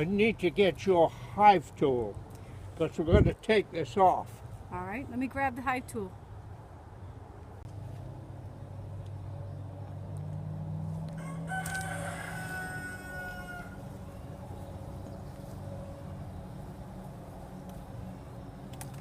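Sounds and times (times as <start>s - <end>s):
rooster crowing: 11.1s - 14.1s
steady low hum: 13.0s - 19.0s.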